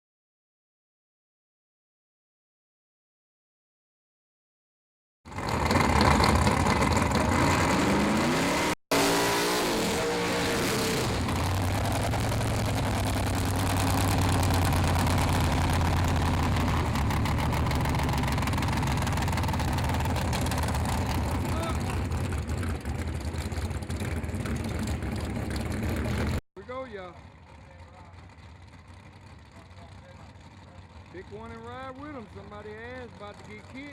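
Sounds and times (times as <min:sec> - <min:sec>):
race car engine revving: 0:05.3 - 0:26.4.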